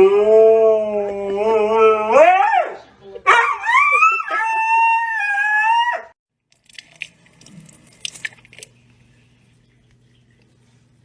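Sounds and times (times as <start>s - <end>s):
dog howling: 0.0s - 6.2s
faint steady hum: 6.4s - 11.0s.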